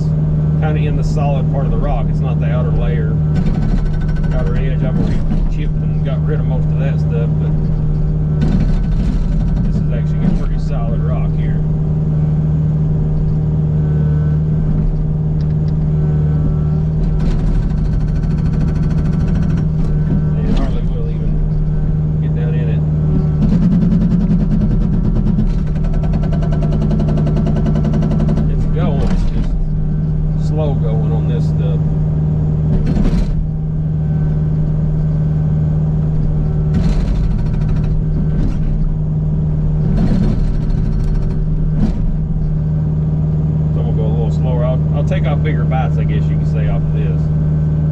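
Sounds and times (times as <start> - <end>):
excavator diesel engine running: 0.0 - 47.9
hydraulic breaker hammering rock: 1.8 - 7.7, 8.3 - 11.4, 16.4 - 21.6, 22.5 - 29.7, 32.6 - 33.5, 36.6 - 38.9, 39.8 - 42.2.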